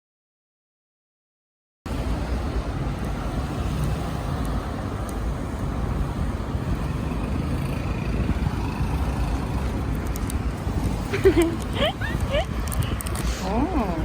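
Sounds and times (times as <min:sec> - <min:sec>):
wind buffeting microphone: 0:01.9 - 0:14.0.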